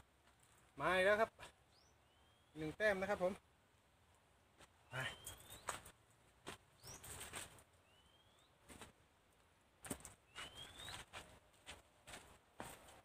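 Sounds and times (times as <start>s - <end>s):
bird calling with rising whistles: 1.7s - 2.6s, 4.9s - 5.8s, 7.8s - 8.6s, 10.3s - 11.1s
footsteps on dry dirt: 5.4s - 7.6s, 9.8s - 13.0s.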